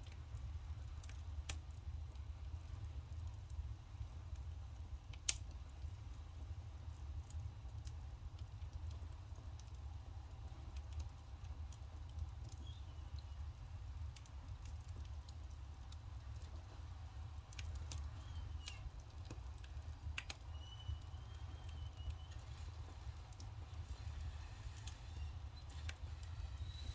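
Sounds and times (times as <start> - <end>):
firewood crackling and popping: 0.0 - 26.9
low rumble of fire: 0.0 - 26.9
faint thin wavering whistles: 20.5 - 22.7, 23.9 - 26.9.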